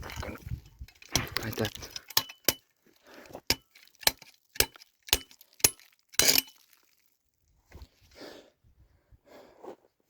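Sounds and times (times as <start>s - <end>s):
scrap iron clinking: 0.0s - 6.6s.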